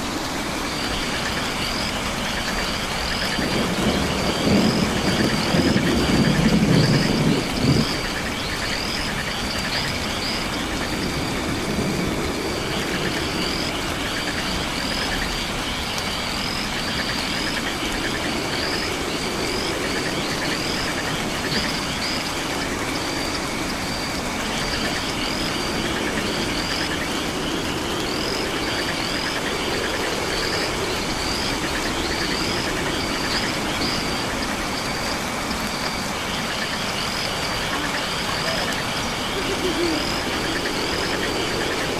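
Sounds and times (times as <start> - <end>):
frogs and insects trilling: 0.0 - 41.9.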